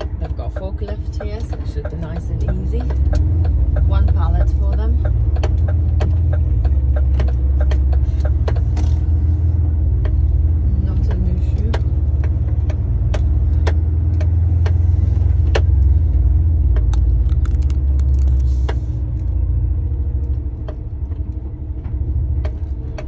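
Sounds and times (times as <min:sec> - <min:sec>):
diesel engine rumbling: 0:00.0 - 0:23.0
clicks and rattles: 0:16.6 - 0:19.3.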